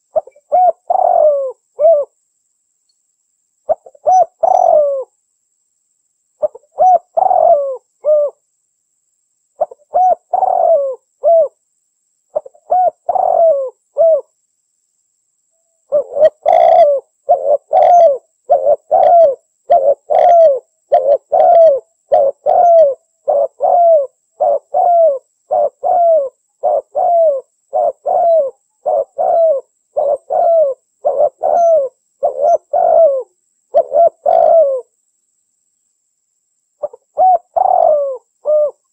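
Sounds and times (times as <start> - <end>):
dove cooing: 0.0 - 2.2, 3.7 - 5.1, 6.4 - 8.4, 9.6 - 11.6, 12.3 - 14.3, 15.9 - 34.9, 36.8 - 38.9.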